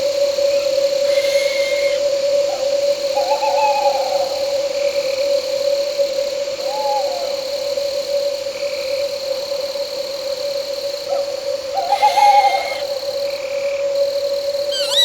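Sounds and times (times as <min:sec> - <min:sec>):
crickets and night insects chirping: 0:00.0 - 0:15.0
owl hooting: 0:00.5 - 0:04.4, 0:11.7 - 0:13.1, 0:14.7 - 0:15.0.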